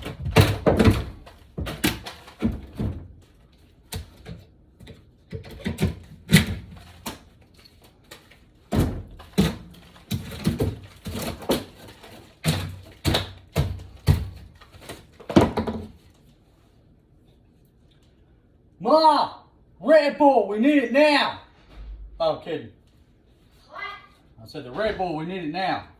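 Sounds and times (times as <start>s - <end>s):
heavy thumps tearing out wooden floor: 0.0s - 3.2s, 8.7s - 16.0s.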